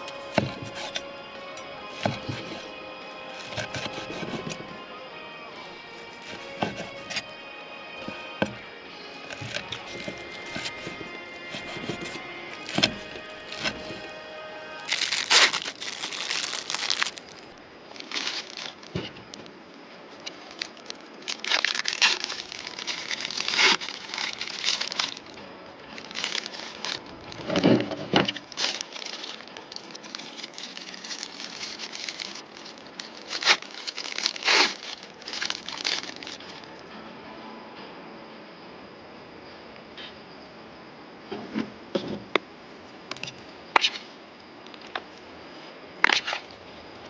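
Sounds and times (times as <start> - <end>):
background music: 0.0 - 17.6, 22.0 - 39.0
crinkling handling noise: 0.0 - 36.8.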